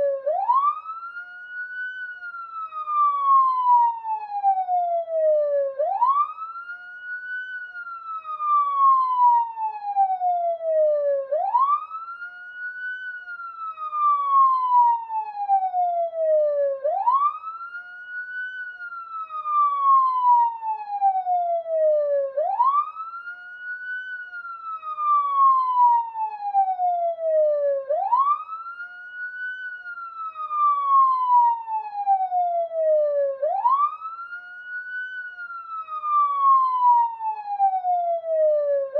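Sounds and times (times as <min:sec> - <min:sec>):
police siren wailing: 0:00.0 - 0:38.9.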